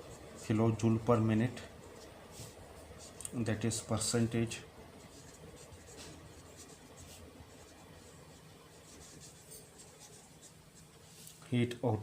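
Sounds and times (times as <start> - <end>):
pen scratching on paper: 0.0 - 0.6, 4.9 - 11.2.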